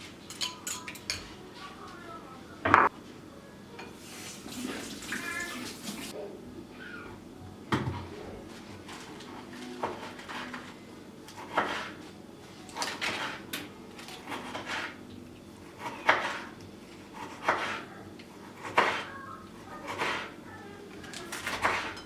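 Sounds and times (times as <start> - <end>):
dishes and utensils clinking: 0.2 - 1.4, 3.8 - 6.1, 21.1 - 22.0.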